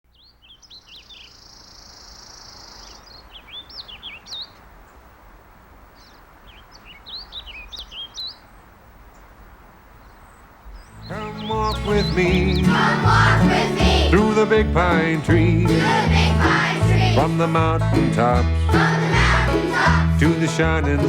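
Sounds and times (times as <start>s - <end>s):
birds chirping and singing: 0.1s - 4.6s, 6.0s - 8.6s, 10.0s - 17.6s
outdoor background hiss: 0.1s - 20.7s.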